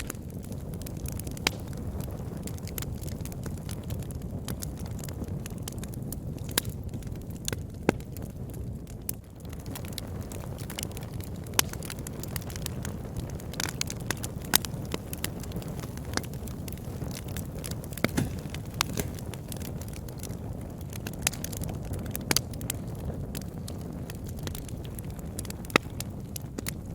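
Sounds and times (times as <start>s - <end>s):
fire crackling and popping: 0.0s - 26.9s
flame rumbling: 0.0s - 26.9s.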